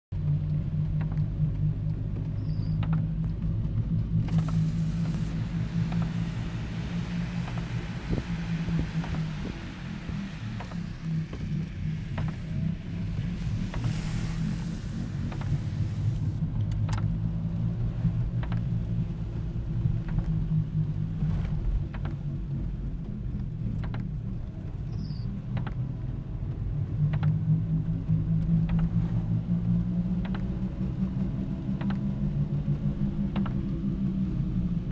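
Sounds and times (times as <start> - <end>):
vehicle engine rumbling: 0.1 - 34.9
hiss: 4.3 - 16.4.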